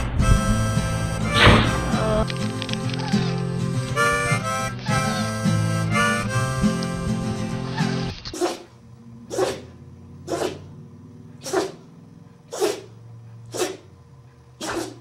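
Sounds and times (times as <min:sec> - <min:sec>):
dog sneezing: 0:07.8 - 0:08.7, 0:09.3 - 0:09.7, 0:10.3 - 0:10.7, 0:11.4 - 0:11.8, 0:12.5 - 0:12.9, 0:13.5 - 0:13.9, 0:14.6 - 0:15.0.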